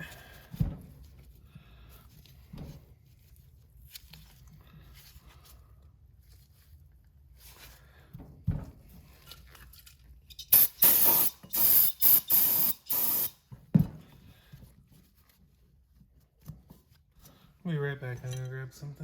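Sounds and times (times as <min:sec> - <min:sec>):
aerosol can spraying: 0:10.4 - 0:13.4.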